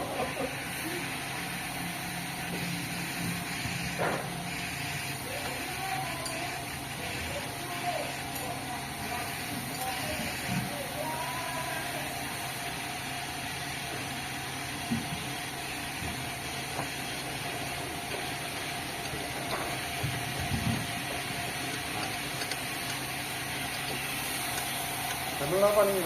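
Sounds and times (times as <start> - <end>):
high steady machine tone: 0.0 - 26.0
sawmill machinery hum: 0.0 - 26.0.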